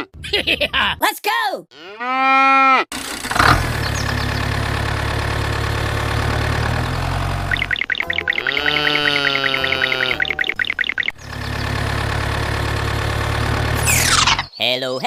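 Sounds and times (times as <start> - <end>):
cow mooing: 1.8 - 2.9, 8.1 - 10.6
engine starting and idling: 2.9 - 8.3, 10.0 - 14.5.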